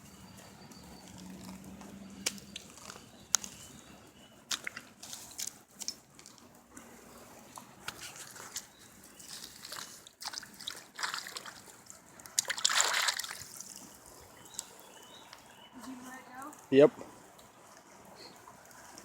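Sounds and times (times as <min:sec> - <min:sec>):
water trickling through mud: 0:00.0 - 0:16.6
short splats and scrapes: 0:04.5 - 0:06.9, 0:07.5 - 0:13.9.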